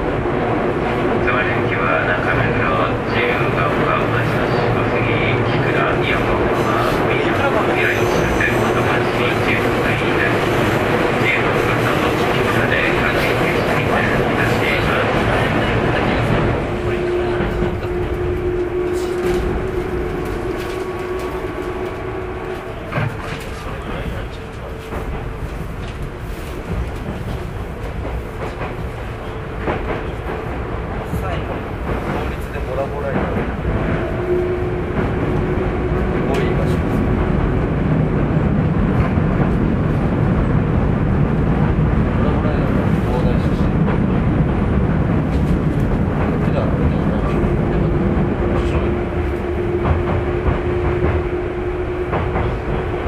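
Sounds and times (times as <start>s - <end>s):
train wheels rumbling on rail: 0.0s - 53.0s
clacks over rail joints: 19.0s - 33.9s, 45.1s - 51.4s, 52.0s - 53.0s.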